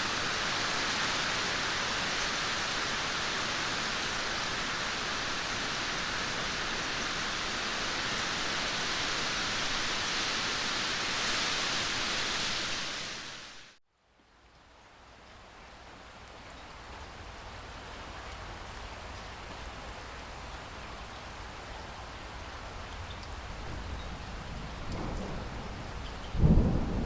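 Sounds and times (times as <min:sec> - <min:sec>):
heavy rain hissing: 0:00.0 - 0:13.8, 0:19.9 - 0:27.0.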